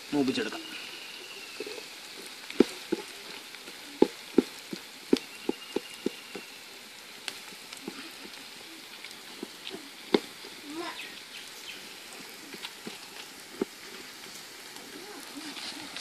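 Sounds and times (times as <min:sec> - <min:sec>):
shallots sizzling in oil: 0:00.0 - 0:16.0.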